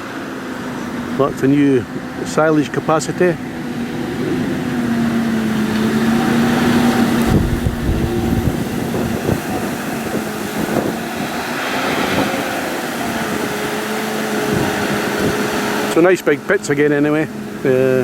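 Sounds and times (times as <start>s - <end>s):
tractor diesel engines running: 0.0s - 18.0s
wind rumble on microphone: 3.6s - 15.9s.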